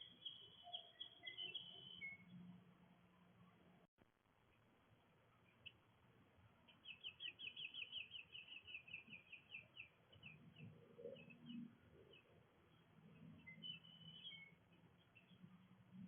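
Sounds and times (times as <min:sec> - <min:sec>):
bird chirping: 0:00.0 - 0:02.5, 0:06.6 - 0:16.0.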